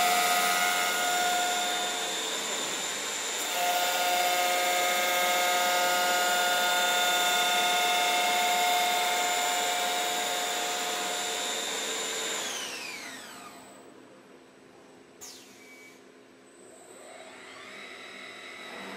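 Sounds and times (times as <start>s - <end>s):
wood lathe whining: 0.0s - 13.5s.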